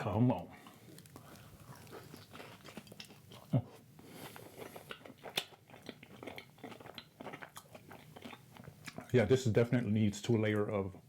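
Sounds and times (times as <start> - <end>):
biting and chewing crunchy food: 0.6 - 9.3.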